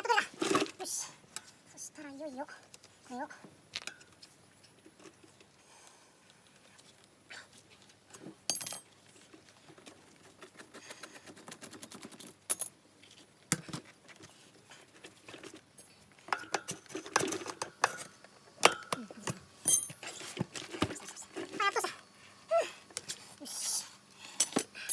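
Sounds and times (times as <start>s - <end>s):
metal tools clinking and knocking: 8.5s - 8.9s, 19.6s - 20.1s, 24.4s - 24.9s.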